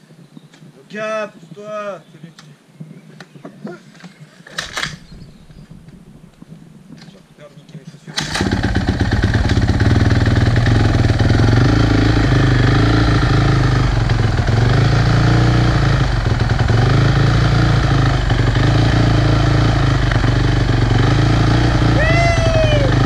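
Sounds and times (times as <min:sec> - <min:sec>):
motorcycle engine idling: 0:08.3 - 0:23.0.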